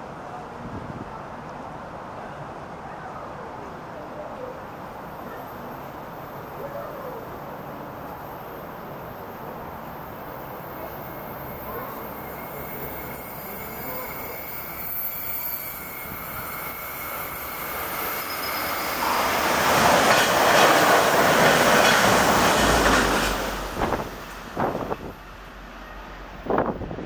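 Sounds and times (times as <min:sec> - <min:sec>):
rush of train wheels on rail: 0:10.4 - 0:27.0.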